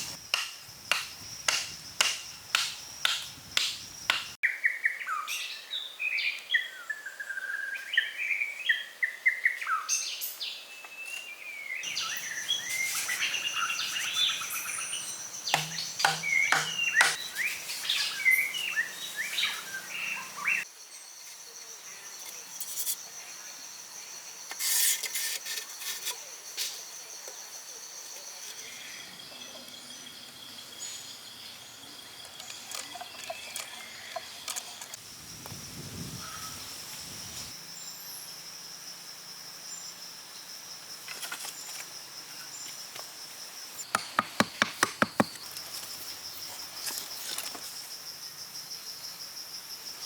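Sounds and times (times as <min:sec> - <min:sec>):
birds chirping and calling: 0:11.8 - 0:20.6
high drone of insects: 0:11.8 - 0:50.0.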